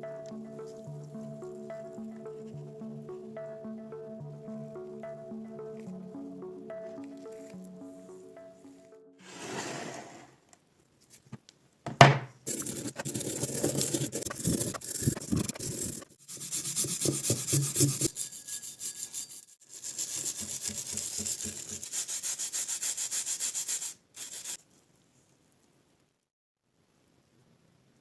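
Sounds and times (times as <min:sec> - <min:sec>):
brush scrubbing metal: 0:12.5 - 0:24.6.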